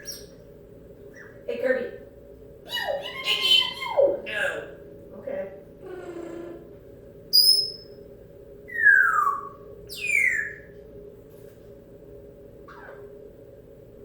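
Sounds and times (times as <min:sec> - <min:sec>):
parrot whistling: 0:00.0 - 0:00.3, 0:02.7 - 0:04.6, 0:08.7 - 0:10.7.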